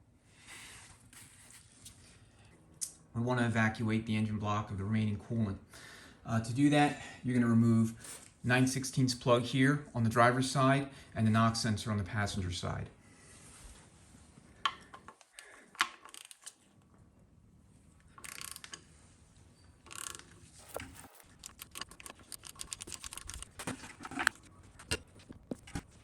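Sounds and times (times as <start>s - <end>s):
ratchet wrench clicking: 18.2s - 18.9s, 19.9s - 23.5s.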